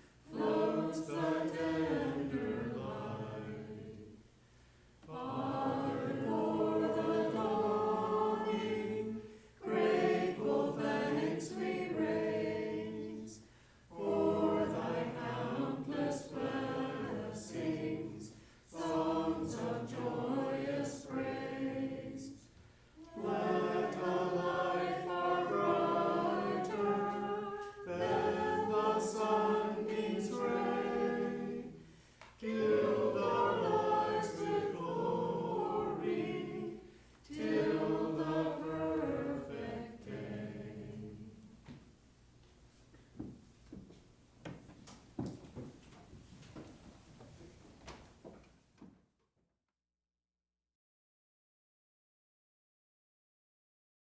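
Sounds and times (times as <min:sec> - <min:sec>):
congregation singing a hymn: 0:00.0 - 0:04.4, 0:05.0 - 0:41.9.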